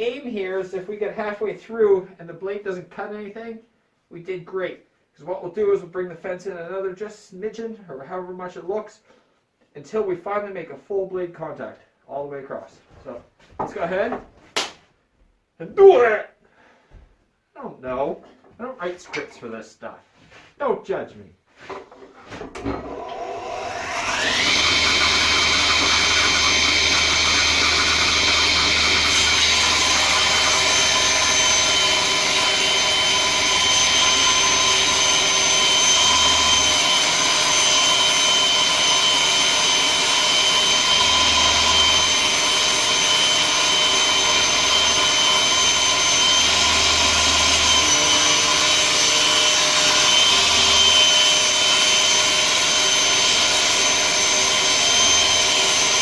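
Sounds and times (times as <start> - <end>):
table saw motor and blade whine: 22.4 - 56.0.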